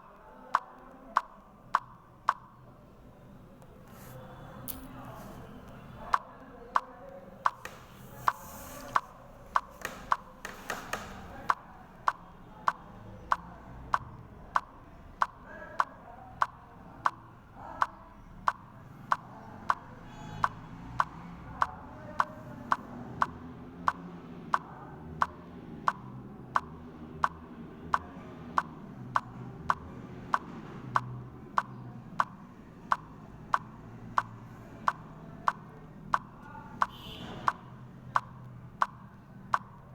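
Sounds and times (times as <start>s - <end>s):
sharp clicks: 3.6s - 39.9s.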